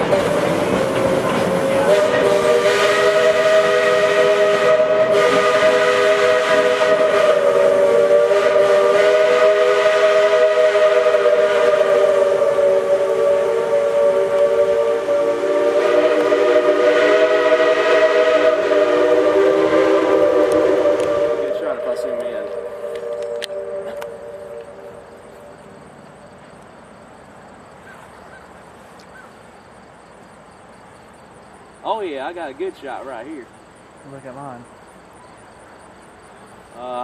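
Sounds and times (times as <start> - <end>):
steam locomotive whistle: 0.0 - 25.7.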